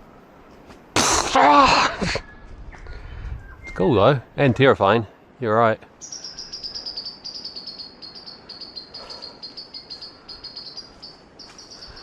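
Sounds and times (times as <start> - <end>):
insect chirping: 6.0 - 12.0.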